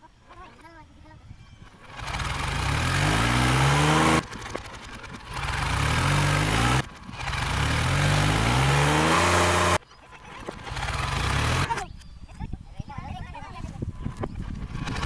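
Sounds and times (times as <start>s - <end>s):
tractor diesel engine revving: 1.8s - 9.8s, 10.4s - 11.8s, 14.6s - 15.0s.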